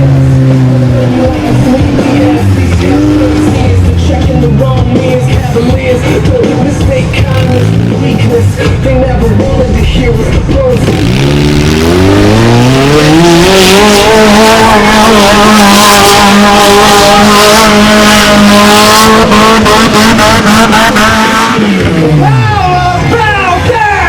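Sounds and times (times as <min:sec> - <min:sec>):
small truck engine revving: 0:00.0 - 0:23.7.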